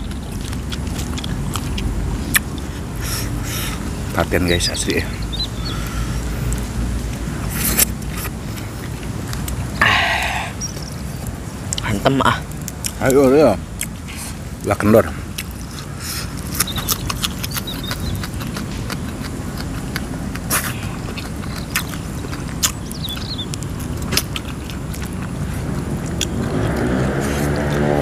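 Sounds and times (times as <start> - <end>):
chewing crunchy food: 0.0 - 28.0
low multi-tone hum: 0.0 - 28.0
mouth clicks: 9.3 - 13.2, 15.3 - 27.9.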